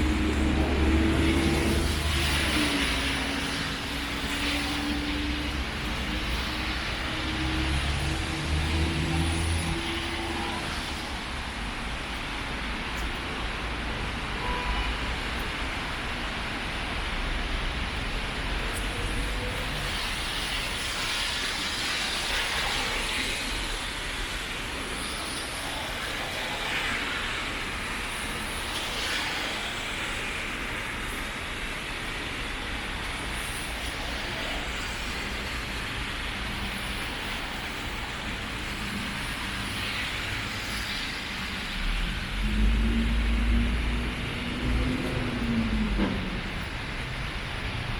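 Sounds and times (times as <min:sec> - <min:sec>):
rain hiss outdoors: 0:00.0 - 0:47.9
vehicle engine rumbling: 0:41.3 - 0:47.9.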